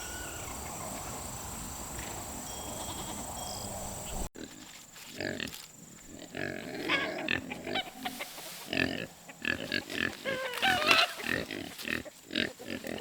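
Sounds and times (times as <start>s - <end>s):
higher wavering animal calls: 0.0s - 1.6s, 2.5s - 4.3s, 10.1s - 11.3s
animal grunting calls: 6.2s - 13.0s.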